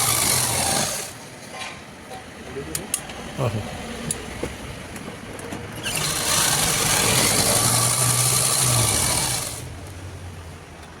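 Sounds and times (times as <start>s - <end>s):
sewing machine running: 0.0s - 1.1s, 5.8s - 9.6s.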